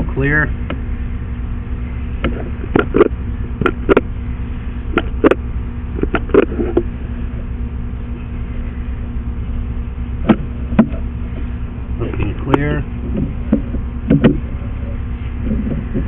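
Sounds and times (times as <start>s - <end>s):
steady low drone: 0.0s - 16.0s
cable clicking and knocking: 13.1s - 14.4s.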